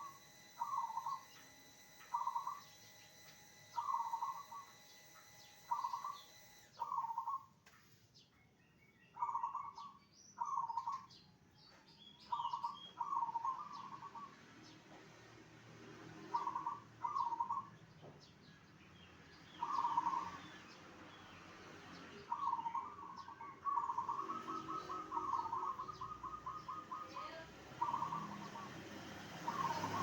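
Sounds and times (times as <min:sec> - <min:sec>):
faint small bird chirps: 0:00.0 - 0:14.4, 0:16.2 - 0:30.0
dove cooing: 0:12.3 - 0:14.3, 0:22.3 - 0:30.0.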